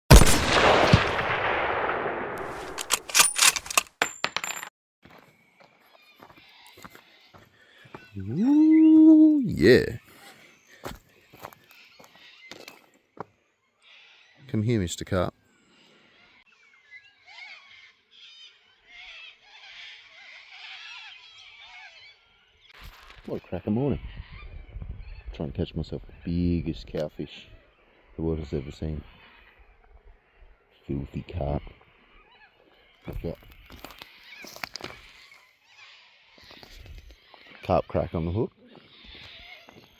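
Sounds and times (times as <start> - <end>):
sharp metallic clicks and clacks: 2.5 - 4.0
birds chirping and trilling: 5.0 - 39.9.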